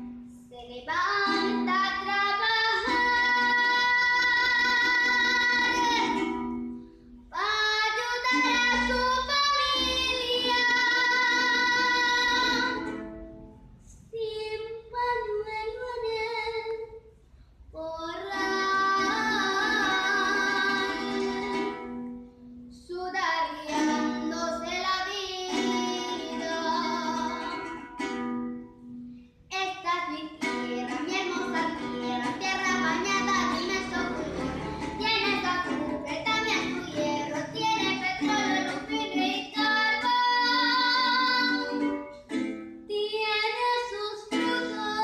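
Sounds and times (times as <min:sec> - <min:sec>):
plucked strings: 0:00.0 - 0:13.8, 0:18.2 - 0:22.8, 0:23.5 - 0:45.0
woman singing: 0:00.4 - 0:06.2, 0:07.3 - 0:12.8, 0:17.8 - 0:21.8, 0:22.8 - 0:27.7, 0:29.5 - 0:41.9, 0:42.9 - 0:45.0.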